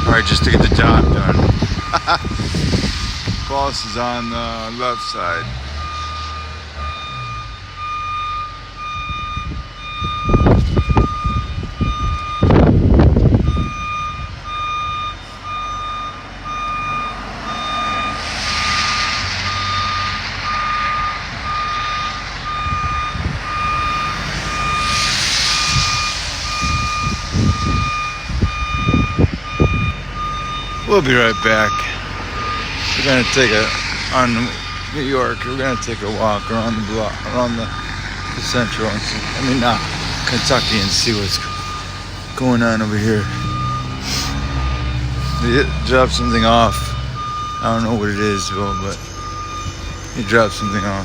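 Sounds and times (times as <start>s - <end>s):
low rumbling bursts: 0.0s - 51.0s
vehicle backup alarm beeping: 0.0s - 51.0s
bursts of hiss: 23.7s - 28.4s, 30.8s - 36.4s, 37.8s - 45.9s.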